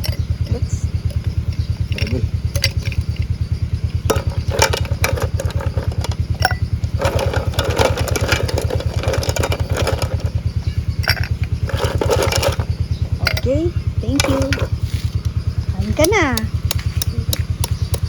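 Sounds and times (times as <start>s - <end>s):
sharp clicks and clatter: 0.0s - 3.3s, 4.1s - 10.4s, 11.0s - 13.4s, 14.2s - 14.8s
small engine thudding: 0.0s - 18.0s.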